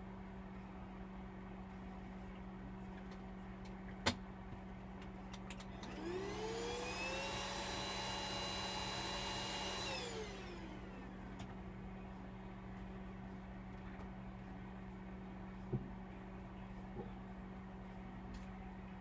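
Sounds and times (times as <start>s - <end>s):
small electric motor whine: 5.8s - 11.2s.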